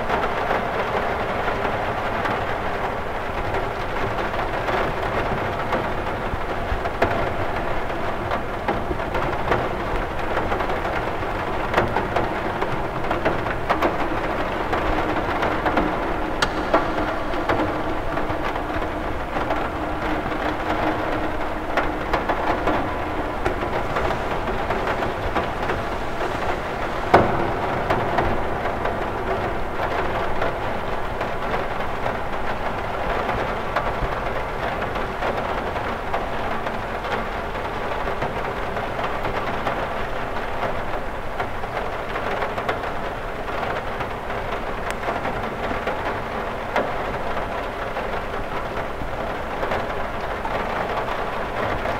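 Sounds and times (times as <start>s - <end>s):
rain on window glass: 0.0s - 51.9s
sharp tap: 16.4s - 18.0s.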